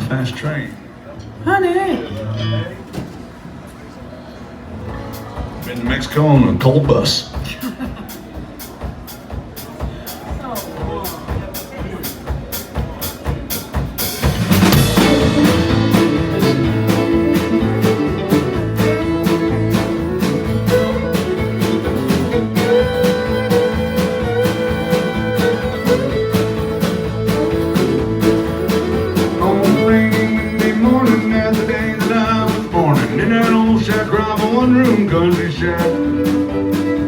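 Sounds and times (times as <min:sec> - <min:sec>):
guitar: 0:01.2 - 0:03.3, 0:04.6 - 0:07.6, 0:14.0 - 0:37.0
steady drum beat: 0:04.8 - 0:37.0
fiddle melody: 0:14.6 - 0:37.0.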